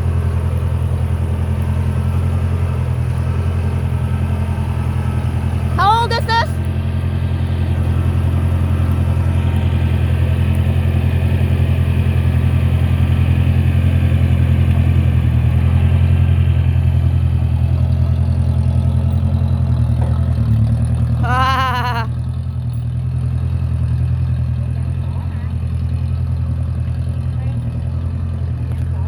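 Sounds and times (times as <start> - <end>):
tractor engine running: 0.0 - 29.0
high voice-like call: 21.2 - 22.1.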